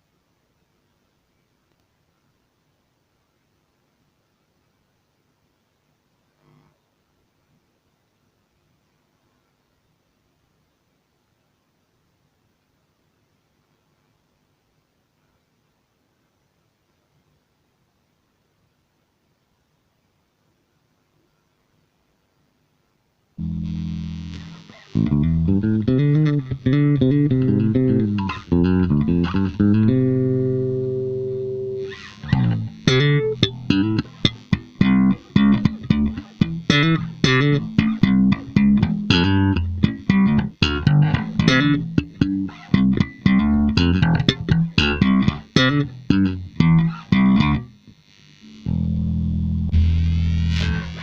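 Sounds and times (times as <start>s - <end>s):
electric bass guitar: 23.4s - 47.9s, 48.5s - 51.0s.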